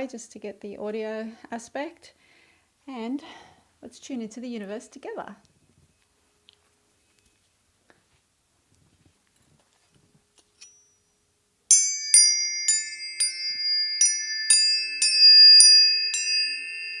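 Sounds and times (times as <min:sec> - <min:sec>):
high struck chime notes: 0:11.7 - 0:17.0.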